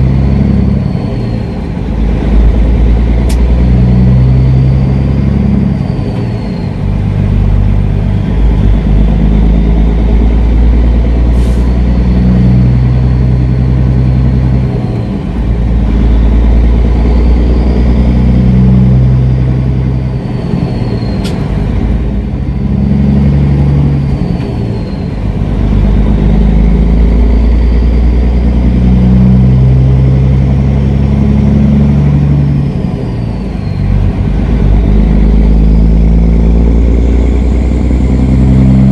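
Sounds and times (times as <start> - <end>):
truck engine rumbling: 0.0 - 38.9
sharp click: 21.2 - 21.5.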